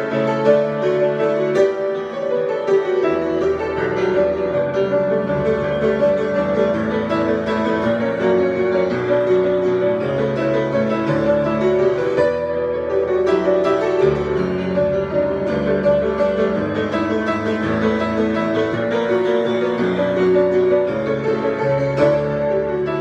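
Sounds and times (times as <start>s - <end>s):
solo piano playing: 0.0s - 23.0s.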